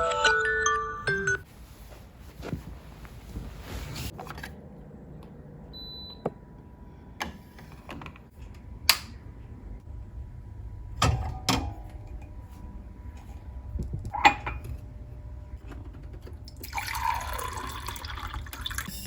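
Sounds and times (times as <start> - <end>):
glockenspiel-like chime melody: 0.0 - 1.4.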